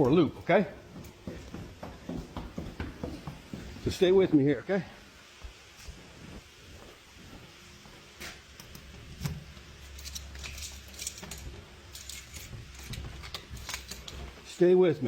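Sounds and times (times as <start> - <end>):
light handling clicks and rustles: 8.5 - 14.7.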